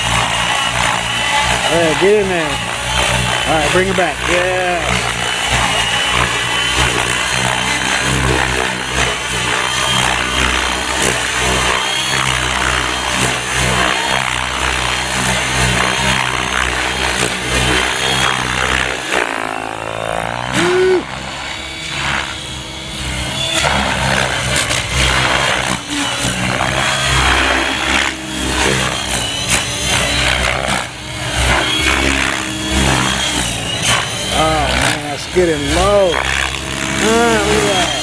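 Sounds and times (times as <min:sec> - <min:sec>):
model helicopter rotor noise: 0:00.0 - 0:38.0
rising and falling whine: 0:00.0 - 0:38.0.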